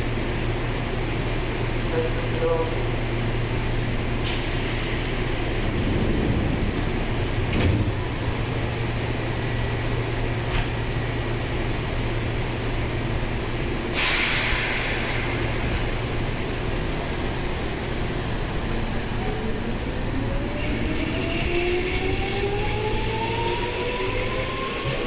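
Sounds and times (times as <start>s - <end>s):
electric train equipment hum: 0.0s - 25.0s
compressed air hissing: 4.2s - 6.5s, 14.0s - 15.7s.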